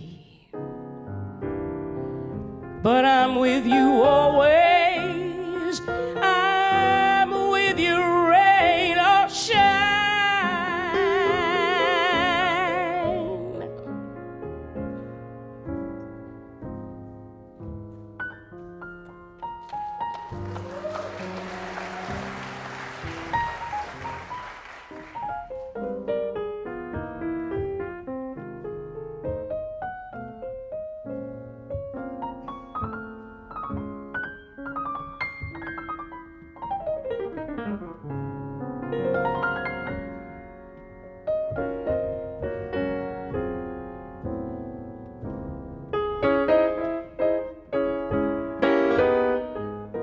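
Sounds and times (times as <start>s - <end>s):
jazz piano solo: 0.5s - 50.0s
applause: 19.6s - 25.7s.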